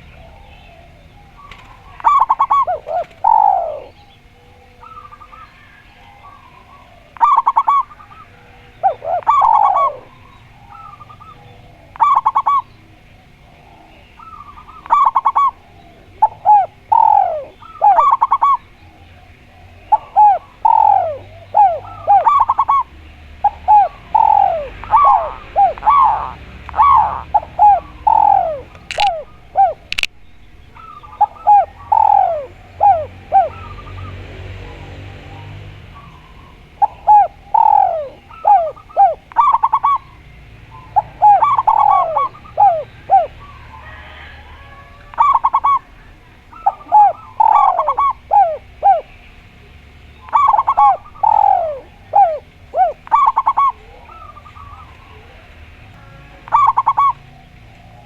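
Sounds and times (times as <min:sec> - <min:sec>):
doves cooing: 0:00.0 - 0:58.0
faint steady hum: 0:00.0 - 0:58.0
sharp clicks: 0:28.7 - 0:29.2, 0:29.8 - 0:30.2.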